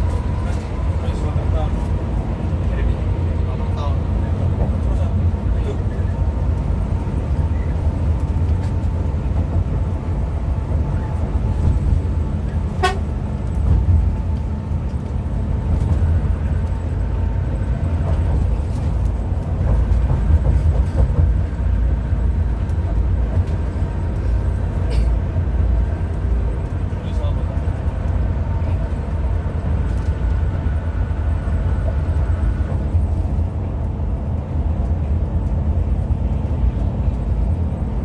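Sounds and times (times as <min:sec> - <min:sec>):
coach engine and tyre drone: 0:00.0 - 0:38.0
vehicle horn toot: 0:12.8 - 0:13.2.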